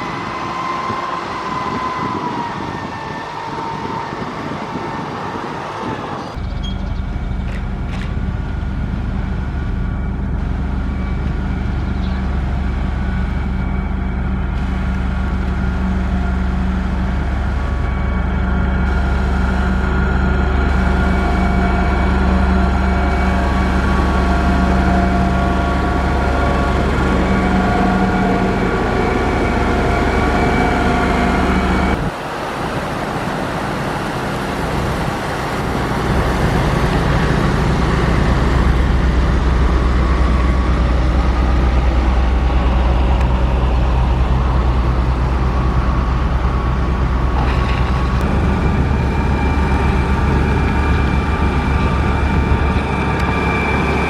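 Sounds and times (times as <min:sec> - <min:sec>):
diesel engine humming and whining: 0:00.0 - 0:54.0.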